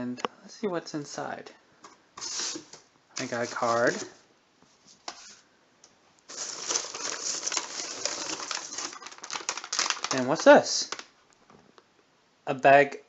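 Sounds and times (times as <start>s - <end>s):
packaging rustling and crinkling: 2.2s - 4.2s, 6.3s - 11.3s.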